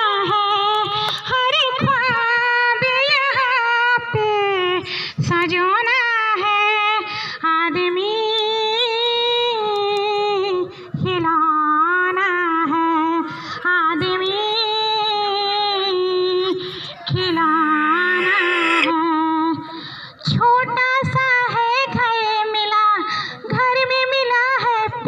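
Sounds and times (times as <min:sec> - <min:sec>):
woman singing unaccompanied: 0:00.0 - 0:19.6.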